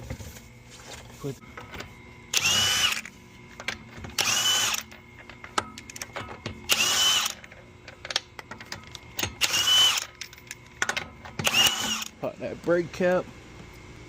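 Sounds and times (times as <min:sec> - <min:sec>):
power tool whirring: 0:02.3 - 0:03.2, 0:03.9 - 0:05.0, 0:06.6 - 0:07.5, 0:09.2 - 0:10.2, 0:11.4 - 0:12.2.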